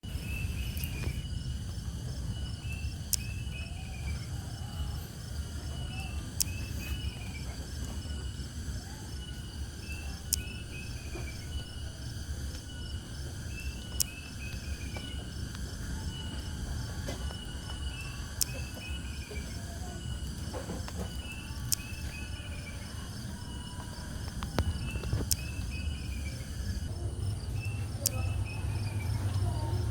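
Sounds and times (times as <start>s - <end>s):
breeze rumble on microphone: 0.0s - 29.9s
cicadas and insects chirring: 0.0s - 29.9s
falling chirp phrases: 0.0s - 29.9s
sharp clicks: 3.1s - 3.4s, 6.3s - 7.0s, 10.2s - 11.6s, 13.5s - 16.2s, 18.4s - 18.9s, 20.2s - 22.2s, 24.2s - 25.8s.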